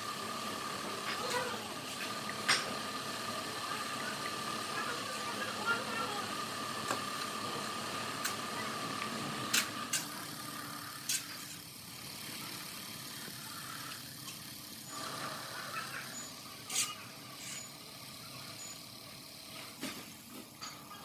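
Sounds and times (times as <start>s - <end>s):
workshop background noise: 0.0s - 21.0s.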